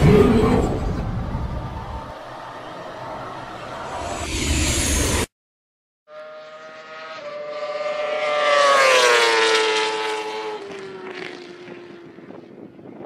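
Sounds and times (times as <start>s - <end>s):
racing motorcycle passing by: 6.1s - 13.0s.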